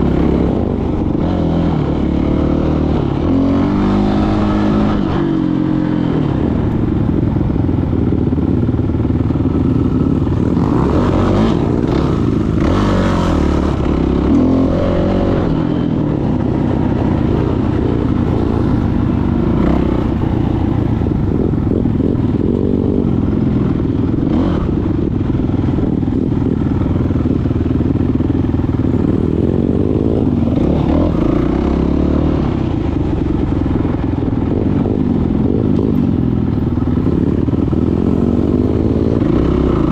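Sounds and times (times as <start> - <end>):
dirt bike engine revving: 0.0 - 6.6, 9.7 - 23.4, 28.8 - 33.2, 37.0 - 39.9.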